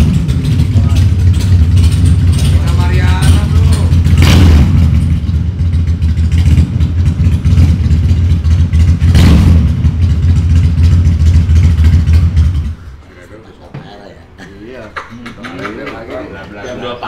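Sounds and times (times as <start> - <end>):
motorcycle engine rumbling: 0.0 - 13.1.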